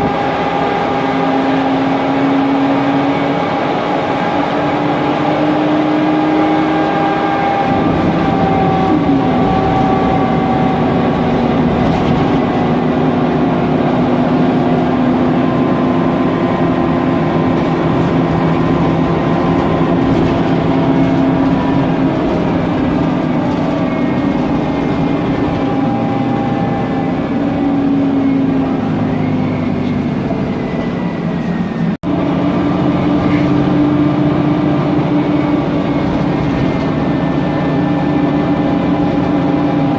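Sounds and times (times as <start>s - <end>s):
bus drivetrain running noise: 0.0s - 39.9s
bus gearbox whining: 6.9s - 14.0s, 16.3s - 31.9s, 34.8s - 39.9s.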